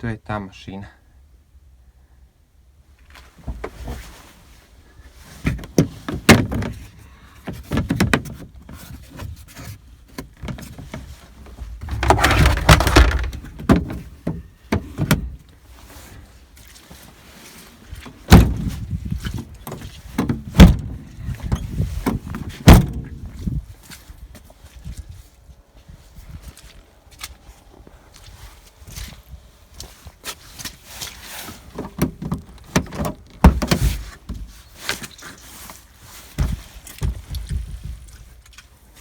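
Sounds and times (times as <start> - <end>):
rough scraping: 11.5 - 13.6
car doors clunking: 11.6 - 15.4, 18.3 - 18.7, 20.2 - 21.0, 22.1 - 23.2
car doors slamming: 11.8 - 13.9, 20.4 - 20.9, 22.7 - 23.2.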